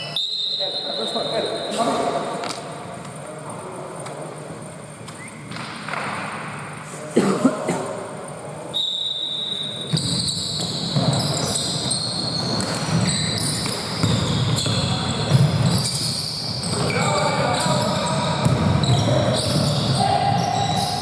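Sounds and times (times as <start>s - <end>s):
basketball game noise: 0.0s - 21.0s
sneakers squeaking on court floor: 4.9s - 6.3s, 8.7s - 21.0s.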